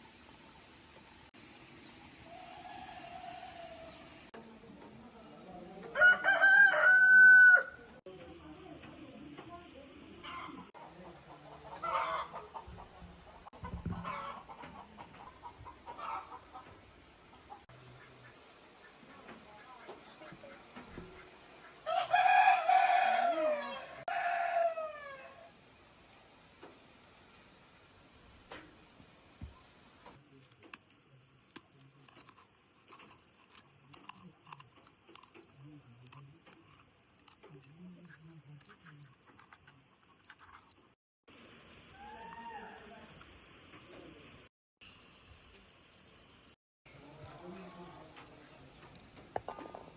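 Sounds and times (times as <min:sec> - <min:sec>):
chickens clucking: 0:10.2 - 0:21.8.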